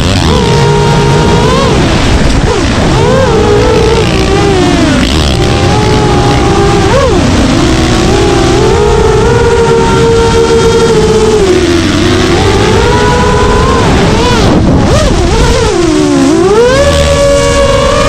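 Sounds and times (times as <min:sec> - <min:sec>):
drone propellers whining: 0:00.0 - 0:18.0.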